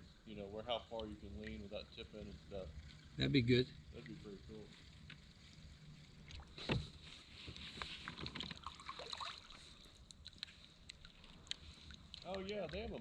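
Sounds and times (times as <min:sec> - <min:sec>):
paddle splashes and drips: 0:04.0 - 0:13.0
thump: 0:06.6 - 0:06.9.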